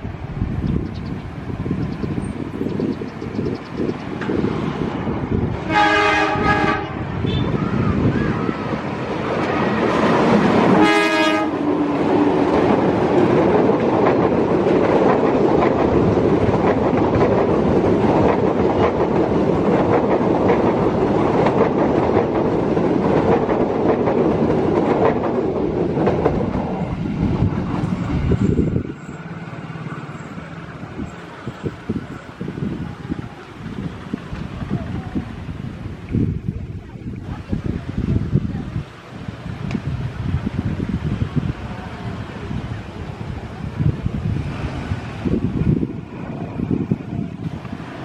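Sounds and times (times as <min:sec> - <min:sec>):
train horn blast: 0:05.6 - 0:07.6, 0:10.7 - 0:11.7
train wheels clattering over rails: 0:08.8 - 0:35.0.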